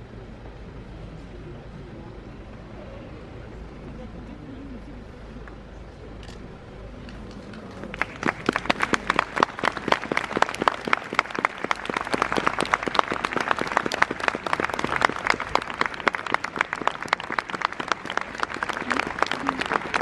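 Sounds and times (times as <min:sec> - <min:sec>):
crowd applauding: 0:07.7 - 0:20.0.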